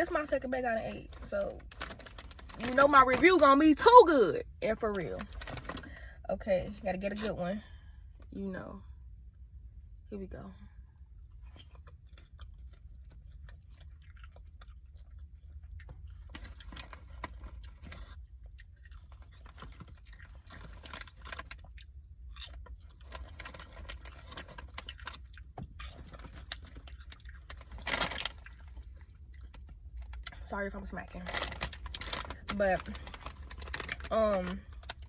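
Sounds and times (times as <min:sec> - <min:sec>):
person chewing crunchy popcorn: 0:11.2 - 0:30.5, 0:31.2 - 0:35.0.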